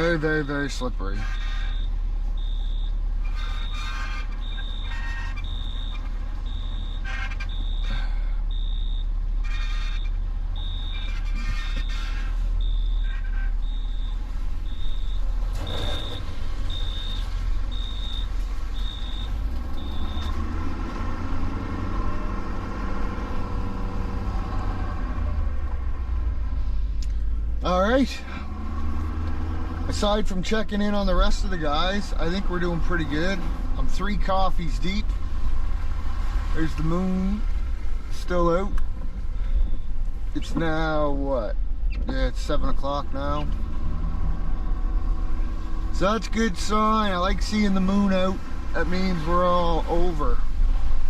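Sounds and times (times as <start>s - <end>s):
truck engine rumble: 0.0s - 51.0s
backup alarm beeping: 1.2s - 20.6s.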